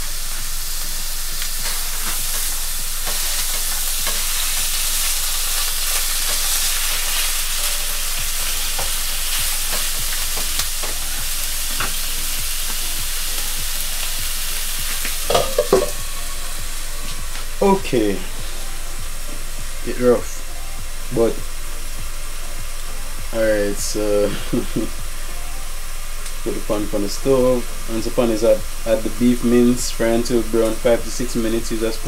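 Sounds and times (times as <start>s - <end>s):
meat sizzling in frying pan: 0.0s - 32.0s
lid clinking on pan: 15.3s - 16.0s.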